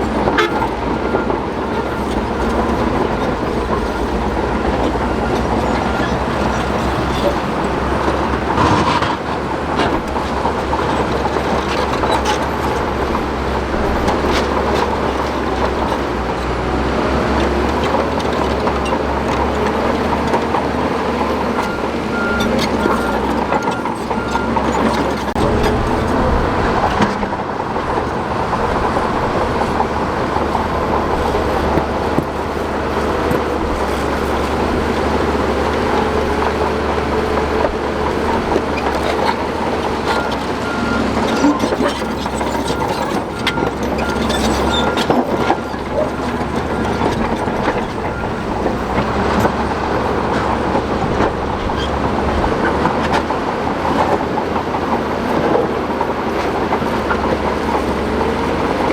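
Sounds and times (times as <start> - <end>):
bulldozer diesel engine running: 0.0 - 58.9
steel tracks clanking: 0.0 - 58.9
reversing alarm beeping: 40.1 - 51.0.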